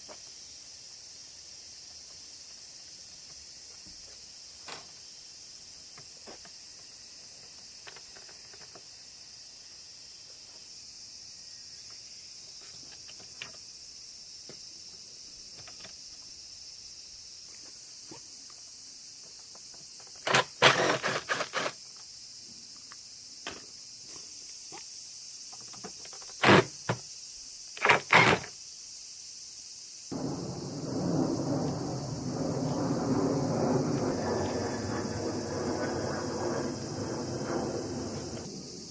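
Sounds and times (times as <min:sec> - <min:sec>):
steady high hiss: 0:00.0 - 0:38.9
rough rushing noise: 0:30.1 - 0:38.9.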